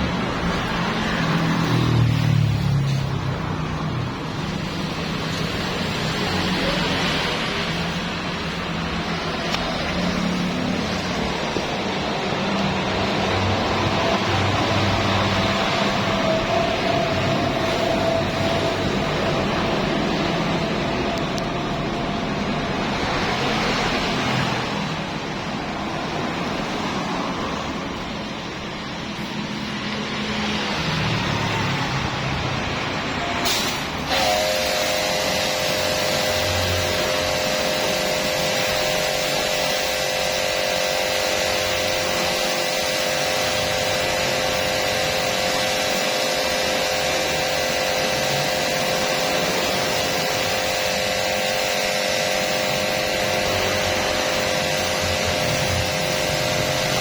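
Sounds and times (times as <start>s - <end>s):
motor humming: 34.0s - 57.0s.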